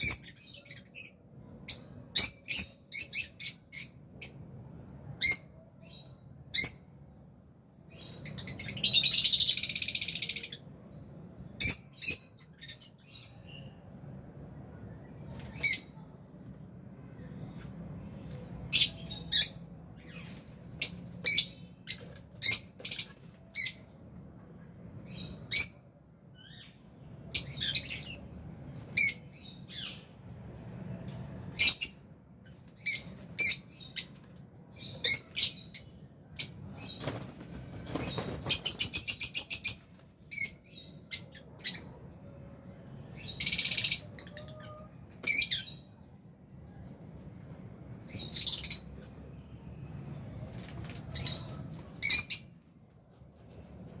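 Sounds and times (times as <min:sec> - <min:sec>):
lovebirds chirping and squawking: 0:00.0 - 0:14.1, 0:14.8 - 0:16.6, 0:17.3 - 0:24.2, 0:25.0 - 0:30.3, 0:31.0 - 0:46.1, 0:46.7 - 0:49.5, 0:50.4 - 0:54.0.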